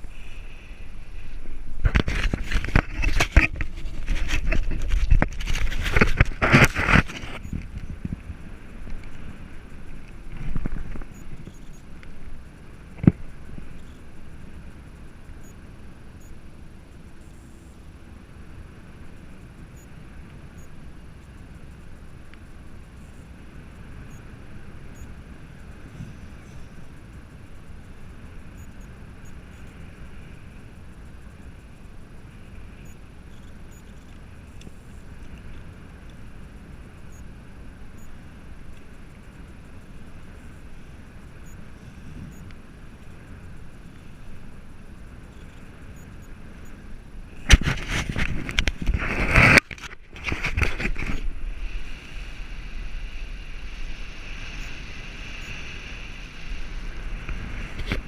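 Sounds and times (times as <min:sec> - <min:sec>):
wind rumble: 0:00.0 - 0:17.2, 0:18.0 - 0:58.0
wind buffeting microphone: 0:00.8 - 0:15.0.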